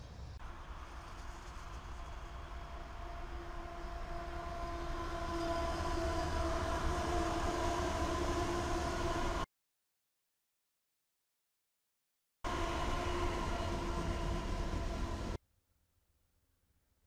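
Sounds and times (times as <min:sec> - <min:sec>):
engine and rail rumble: 0:00.0 - 0:09.5, 0:12.5 - 0:15.4
locomotive whine: 0:00.4 - 0:09.5, 0:12.5 - 0:15.4.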